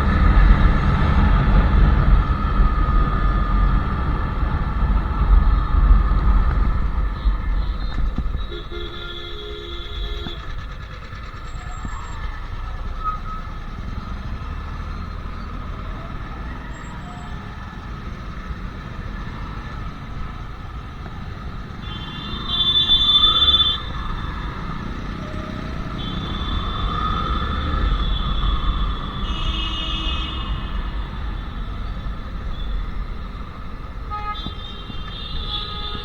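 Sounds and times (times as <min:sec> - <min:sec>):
motorcycle engine running: 0:00.0 - 0:36.0
vehicle horn: 0:05.4 - 0:10.8, 0:21.7 - 0:33.4, 0:34.0 - 0:36.0.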